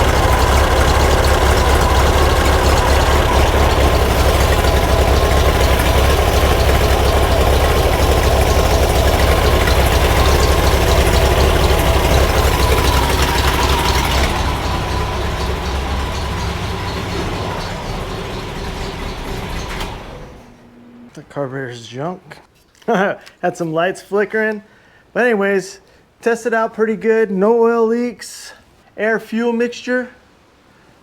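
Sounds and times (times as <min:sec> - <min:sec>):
air-cooled engine idling: 0:00.0 - 0:20.6.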